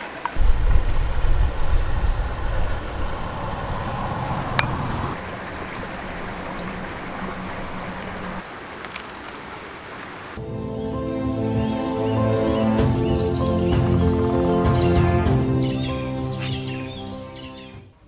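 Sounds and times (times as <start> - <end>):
low rumble: 0.4 - 8.4
rushing noise: 0.4 - 8.4.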